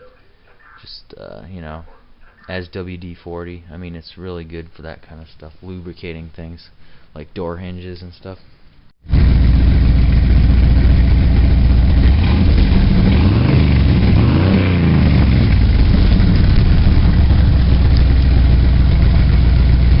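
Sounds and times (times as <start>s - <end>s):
vehicle engine running: 9.1s - 20.0s.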